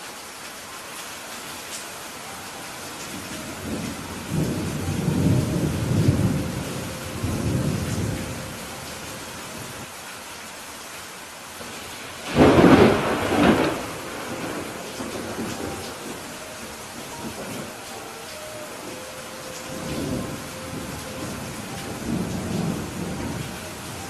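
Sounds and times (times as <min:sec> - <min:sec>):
steady rain: 0:00.0 - 0:24.0
thunder rumbling: 0:03.0 - 0:09.9, 0:11.6 - 0:24.0.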